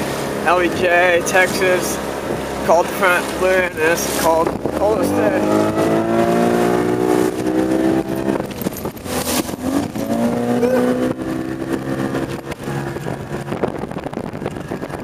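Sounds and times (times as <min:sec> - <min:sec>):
outboard motor running: 0:00.0 - 0:15.0
wind noise: 0:00.0 - 0:15.0.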